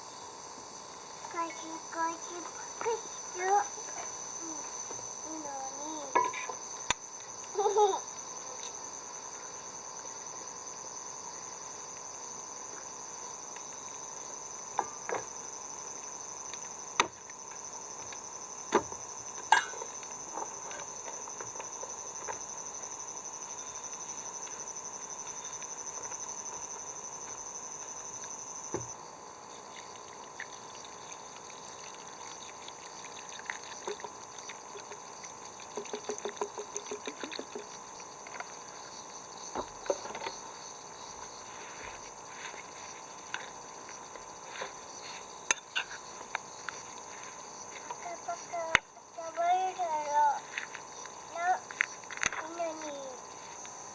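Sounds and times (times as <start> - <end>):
insects chirring: 0.0 - 53.9.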